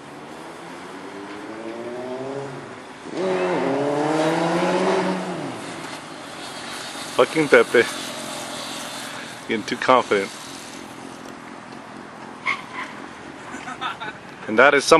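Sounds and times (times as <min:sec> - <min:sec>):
motorcycle engine revving: 0:00.4 - 0:10.7.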